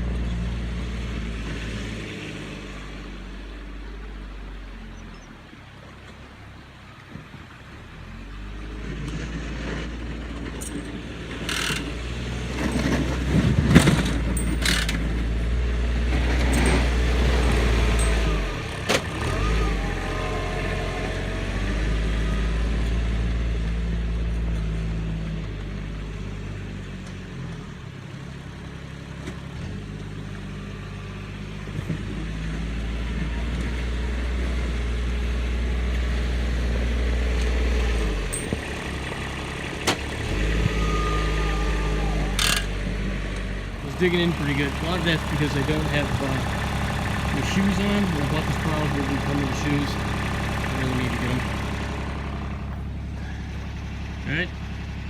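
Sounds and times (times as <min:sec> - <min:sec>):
tractor engine running: 0:00.0 - 0:55.0
sharp knocks and clatter: 0:09.0 - 0:15.3.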